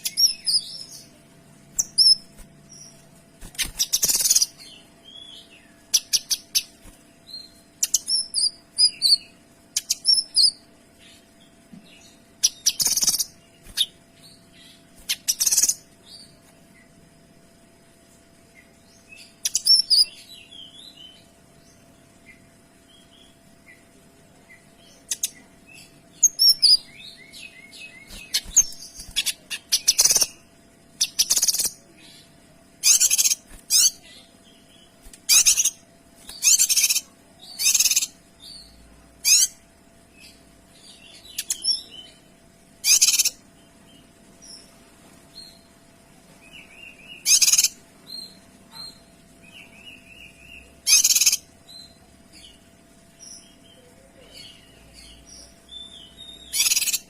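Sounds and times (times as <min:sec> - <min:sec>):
bird twittering: 0:00.0 - 0:01.1, 0:01.8 - 0:06.8, 0:12.4 - 0:14.0, 0:14.6 - 0:16.3, 0:26.2 - 0:30.4, 0:31.0 - 0:31.8, 0:32.8 - 0:34.1, 0:35.2 - 0:39.6, 0:42.8 - 0:43.4, 0:46.5 - 0:52.6, 0:53.3 - 0:57.0
faint steady hum: 0:00.0 - 0:57.0
songbird high-pitched bursts: 0:42.8 - 0:43.4, 0:46.7 - 0:47.8, 0:50.0 - 0:51.4, 0:55.8 - 0:57.0.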